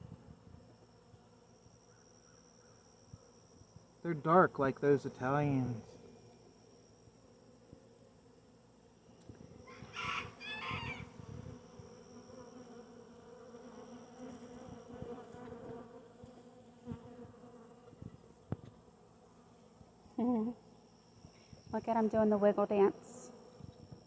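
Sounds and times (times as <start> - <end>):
bee swarm buzzing: 4.3 - 21.0
chicken calling: 9.7 - 11.1.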